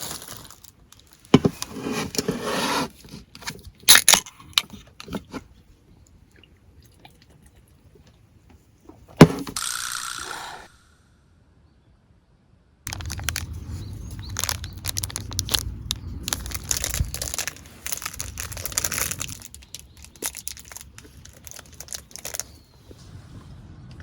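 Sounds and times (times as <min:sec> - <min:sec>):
crinkling and crackling with clicks: 0:00.0 - 0:02.3, 0:12.9 - 0:22.9.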